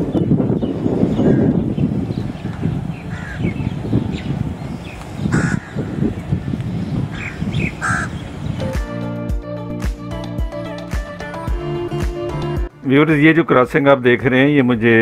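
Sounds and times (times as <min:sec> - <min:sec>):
music: 0:08.5 - 0:15.0.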